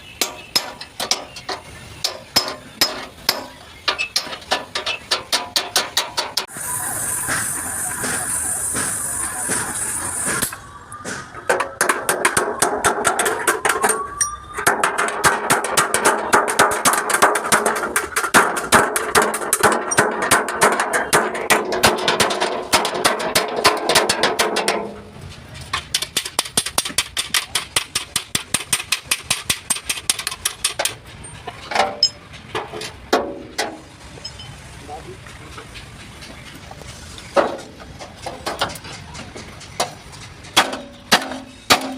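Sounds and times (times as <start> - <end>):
hammer blows on sheet metal: 0.0 - 25.0.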